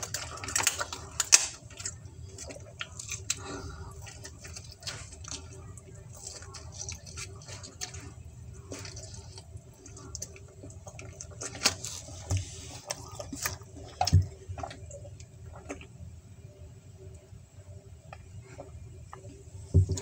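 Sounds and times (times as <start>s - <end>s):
wet chewing and lip-smacking: 0.0s - 15.9s.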